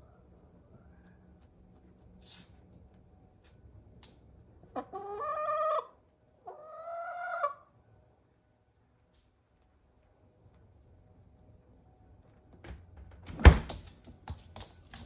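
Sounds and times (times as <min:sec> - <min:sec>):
chicken calling: 0:04.8 - 0:07.7.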